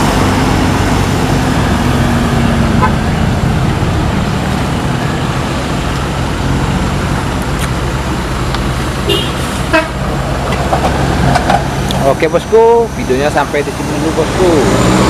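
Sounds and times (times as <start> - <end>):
truck diesel engine droning: 0.0 - 15.0
short horn toots: 9.1 - 10.0.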